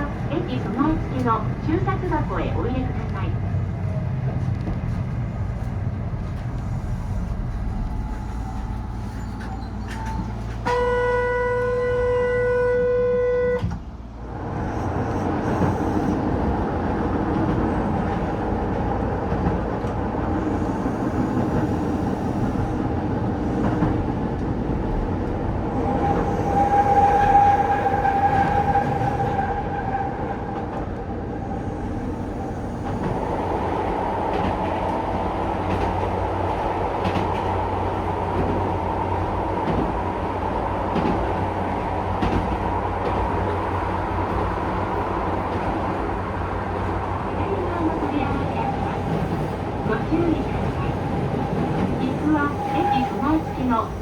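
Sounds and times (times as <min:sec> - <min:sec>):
electric train running on rails: 0:00.0 - 0:54.0
train horn: 0:10.6 - 0:13.8, 0:25.7 - 0:30.6, 0:52.3 - 0:54.0.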